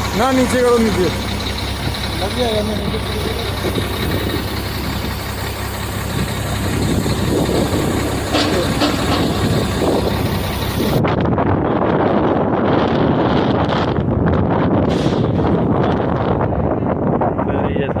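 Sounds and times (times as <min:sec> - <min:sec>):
truck diesel engine idling: 0:00.0 - 0:13.4.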